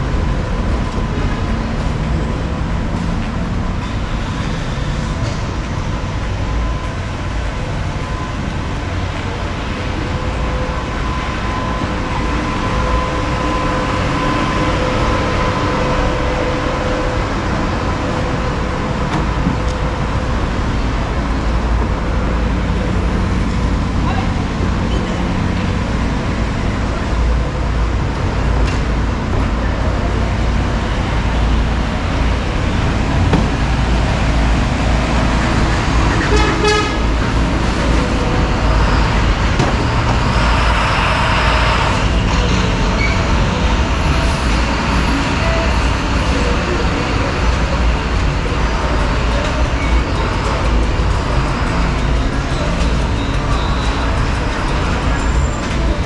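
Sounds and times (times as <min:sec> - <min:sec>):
street traffic: 0:00.0 - 0:56.0
car horn toot: 0:36.3 - 0:37.1.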